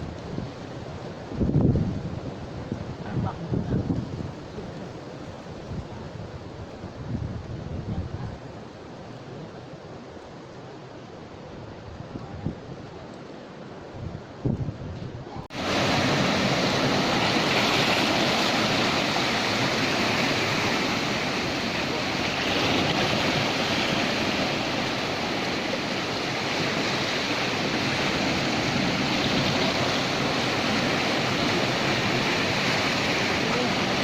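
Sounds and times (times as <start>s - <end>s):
rushing water: 0.0s - 34.0s.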